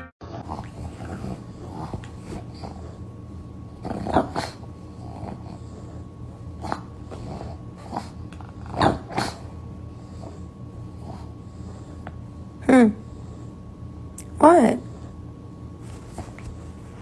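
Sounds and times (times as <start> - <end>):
dog growling: 0.2 - 12.0.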